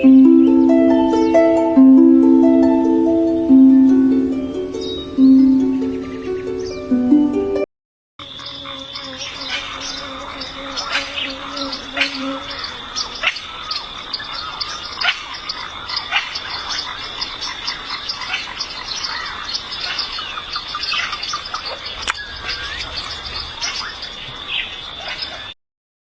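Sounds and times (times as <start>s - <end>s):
high-pitched insect drone: 8.2s - 18.2s
frog and bird chirps: 8.2s - 25.6s.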